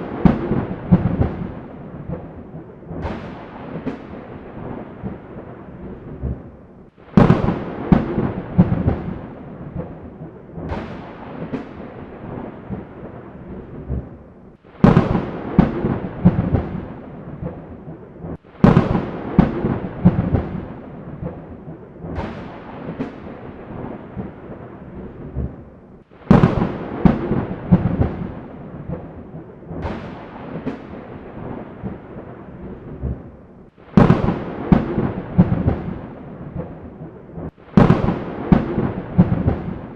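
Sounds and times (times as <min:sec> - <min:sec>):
thunder cracks and rumble: 0:00.0 - 0:39.9
rain hiss: 0:26.0 - 0:29.0.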